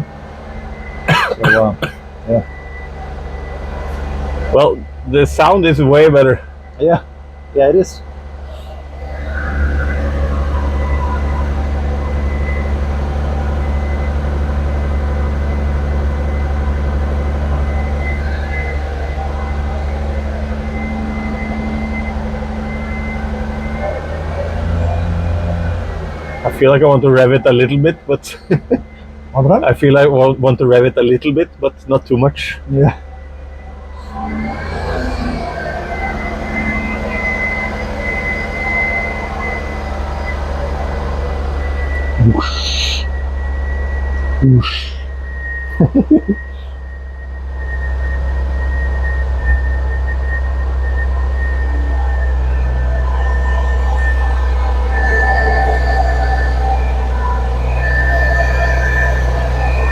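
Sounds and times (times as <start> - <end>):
race car engine idling: 0.0 - 34.2.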